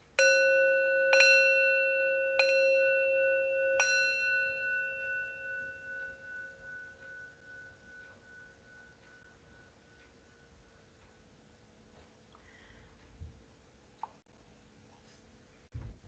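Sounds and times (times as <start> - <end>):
singing bowl ringing: 0.0 - 11.3.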